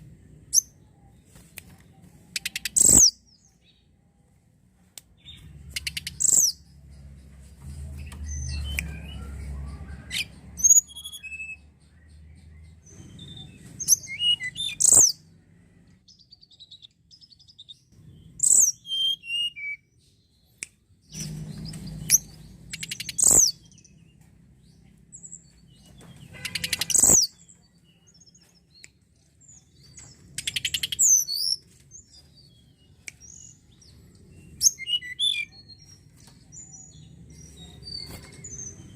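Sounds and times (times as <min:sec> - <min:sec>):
bird singing whistled notes: 0:02.4 - 0:03.6, 0:05.2 - 0:06.7, 0:08.2 - 0:15.2, 0:18.4 - 0:20.1, 0:21.1 - 0:24.0, 0:29.4 - 0:38.9.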